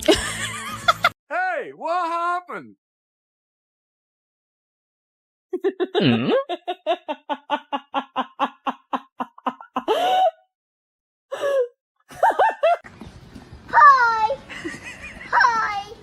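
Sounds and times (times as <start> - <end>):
person laughing hard: 5.6 - 10.4, 11.4 - 12.8
short vocal sounds: 6.0 - 6.4.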